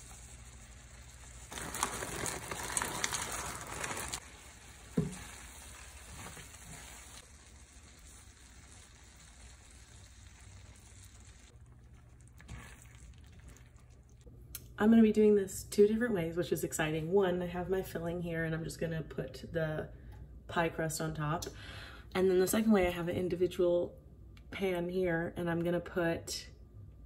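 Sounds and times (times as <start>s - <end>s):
food sizzling in a skillet: 0.0s - 11.6s.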